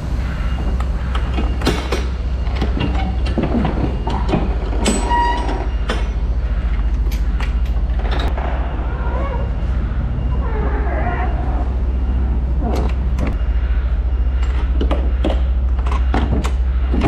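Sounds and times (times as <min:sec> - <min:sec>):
metal doors clanking: 0:01.2 - 0:06.3, 0:06.9 - 0:09.6
metal door squeal: 0:01.4 - 0:06.2, 0:08.0 - 0:12.9.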